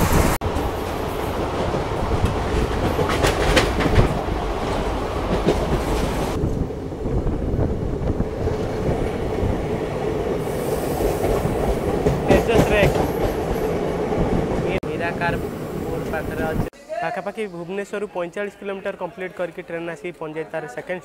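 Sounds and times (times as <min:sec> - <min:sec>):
wheels clacking over rail joints: 0:00.0 - 0:06.6, 0:08.4 - 0:14.8
train rumbling: 0:00.0 - 0:16.7
hiss: 0:10.4 - 0:11.8.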